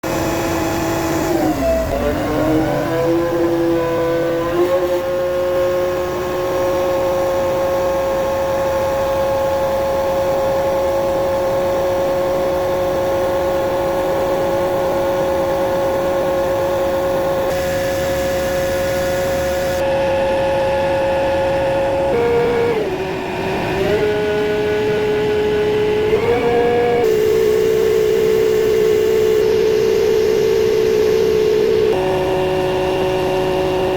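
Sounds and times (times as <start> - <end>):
engine droning hum: 0.0 - 33.9
motor whining: 0.1 - 8.3, 22.1 - 33.9.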